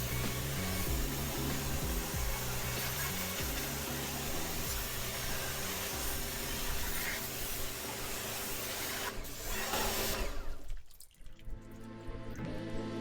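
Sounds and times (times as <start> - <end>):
pressure washer spraying: 0.0 - 10.7.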